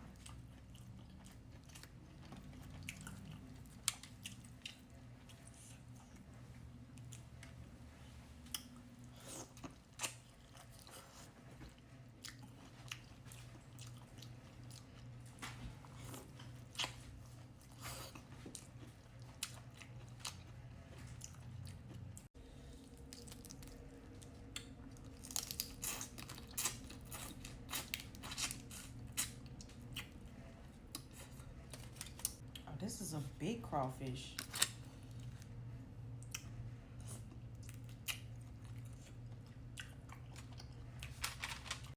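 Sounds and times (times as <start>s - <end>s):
chewing and biting: 0.0s - 6.2s, 8.4s - 32.6s, 36.2s - 41.8s
shells cracking and crunching: 25.1s - 26.9s.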